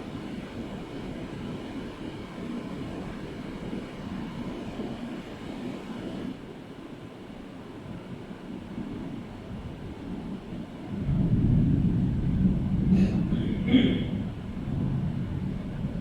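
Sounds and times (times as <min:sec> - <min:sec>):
distant rolling thunder: 0:10.7 - 0:16.0.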